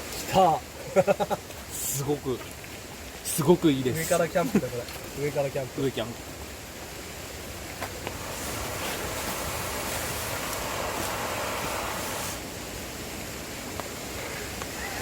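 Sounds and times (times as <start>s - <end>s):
fire crackling: 7.6s - 12.6s
fire rushing hiss: 7.9s - 12.7s.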